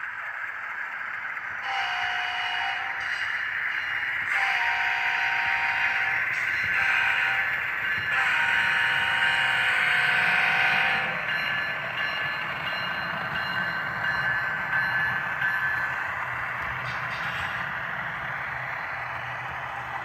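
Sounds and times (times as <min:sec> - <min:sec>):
model train horn from small speaker: 0:01.6 - 0:03.2, 0:04.3 - 0:07.5, 0:08.2 - 0:11.1.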